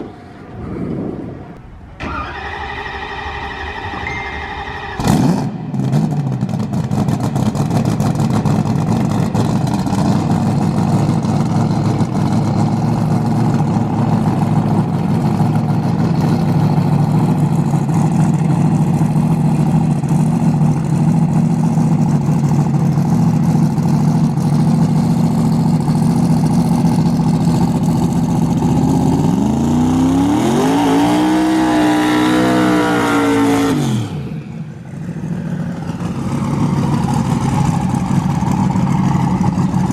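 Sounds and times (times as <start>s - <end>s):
race car engine revving: 28.3s - 34.5s.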